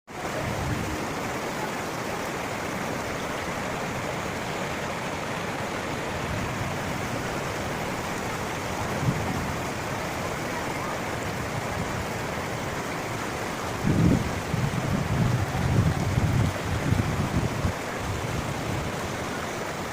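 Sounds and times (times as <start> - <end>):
waterfall roaring: 0.1 - 19.9
wind buffeting microphone: 5.9 - 10.2, 13.6 - 19.3.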